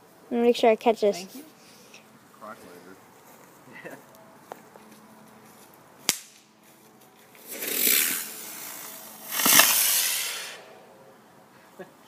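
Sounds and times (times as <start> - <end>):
firework hissing bursts: 7.4 - 10.9
firework pop: 9.3 - 10.5.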